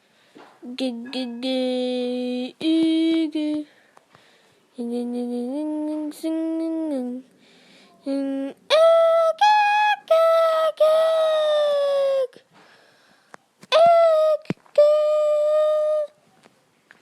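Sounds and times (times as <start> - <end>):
young voice singing: 0.6 - 3.8, 4.7 - 12.5, 13.6 - 16.3.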